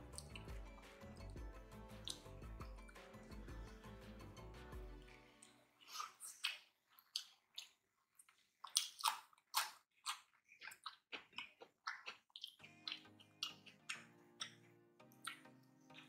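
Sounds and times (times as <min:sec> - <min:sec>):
background music: 0:00.0 - 0:05.8, 0:12.6 - 0:16.0
close chewing clicks: 0:05.8 - 0:16.0.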